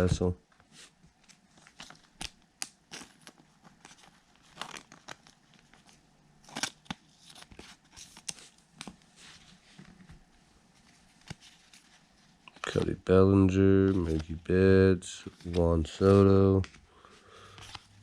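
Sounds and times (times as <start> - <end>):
trading cards snapping and rustling: 1.1 - 9.0, 11.2 - 14.5, 15.2 - 18.0.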